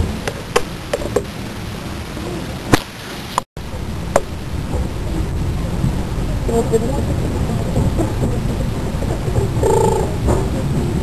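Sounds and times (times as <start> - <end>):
train carriage rumbling: 3.6 - 11.0.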